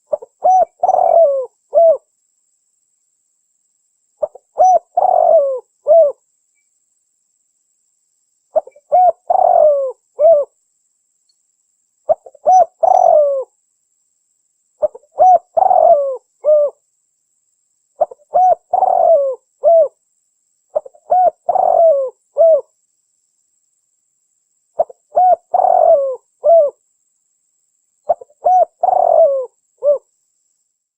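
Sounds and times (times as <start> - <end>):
dove cooing: 0.0 - 2.1, 4.2 - 6.2, 8.6 - 10.5, 12.1 - 13.5, 14.8 - 16.8, 18.0 - 20.0, 20.7 - 22.7, 24.8 - 26.8, 28.1 - 30.1.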